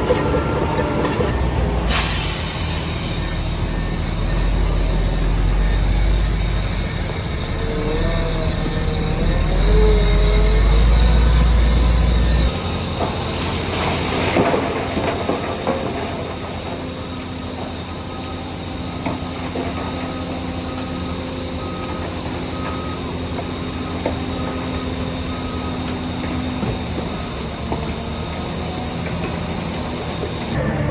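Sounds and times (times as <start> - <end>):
heavy diesel machinery rumbling: 0.0 - 30.9
reversing alarm beeping: 0.0 - 30.9
rushing hiss: 1.9 - 20.7.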